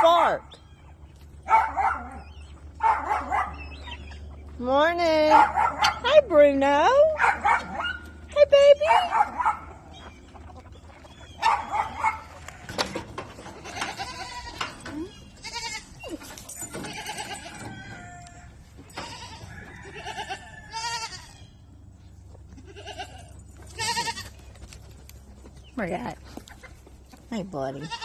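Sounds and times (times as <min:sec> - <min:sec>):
goats bleating: 0:13.4 - 0:16.1, 0:16.7 - 0:21.5, 0:22.5 - 0:24.5, 0:27.8 - 0:28.0.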